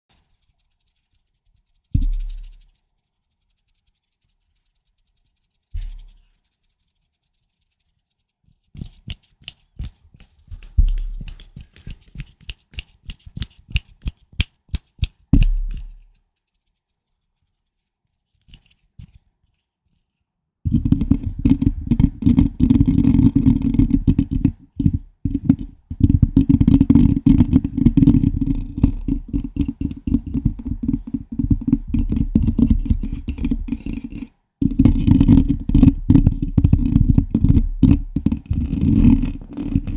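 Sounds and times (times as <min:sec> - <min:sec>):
scratching and rubbing on microphone: 0:00.1 - 0:20.1, 0:20.7 - 0:39.9
fingers tapping a microphone: 0:02.0 - 0:02.6, 0:08.8 - 0:16.1, 0:20.7 - 0:39.9.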